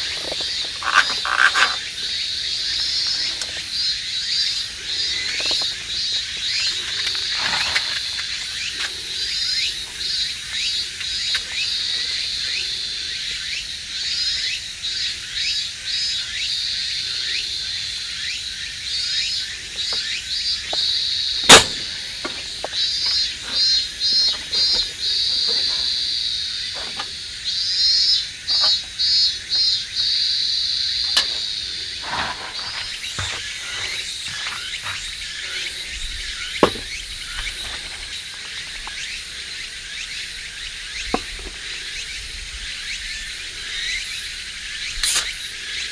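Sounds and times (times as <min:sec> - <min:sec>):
insects chirping: 0:00.0 - 0:45.9
sharp snap: 0:21.5 - 0:22.0, 0:45.0 - 0:45.4.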